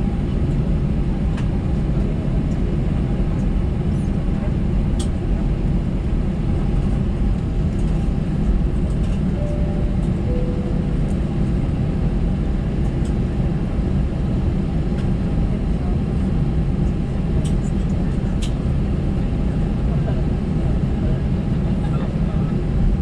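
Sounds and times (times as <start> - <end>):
aircraft cabin engine rumble: 0.0 - 23.0
faint short tones: 9.4 - 11.4.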